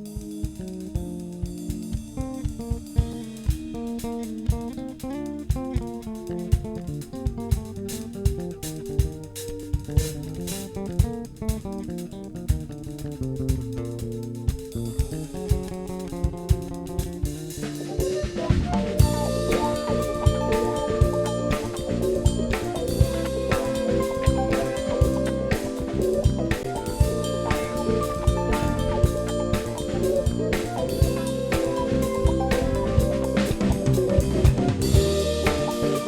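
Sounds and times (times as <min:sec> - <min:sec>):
jazz-funk band playing: 0:00.0 - 0:36.0.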